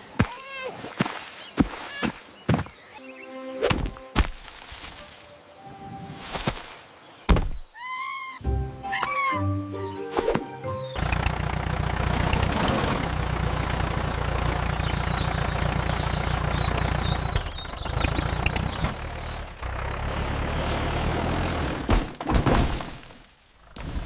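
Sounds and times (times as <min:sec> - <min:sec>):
tractor engine idling: 0:10.7 - 0:21.8.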